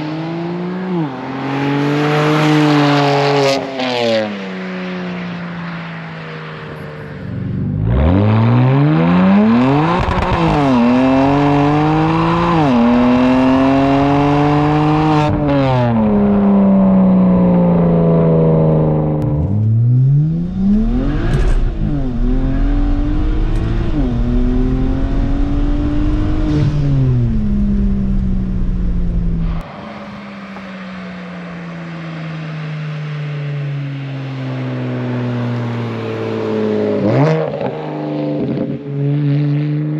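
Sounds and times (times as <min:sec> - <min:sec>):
car exhaust at full throttle: 0:06.6 - 0:31.4.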